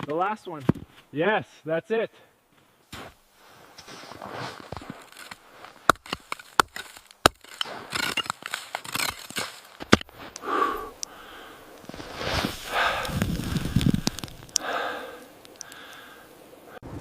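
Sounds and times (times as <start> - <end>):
heavy breathing: 10.3 - 16.8.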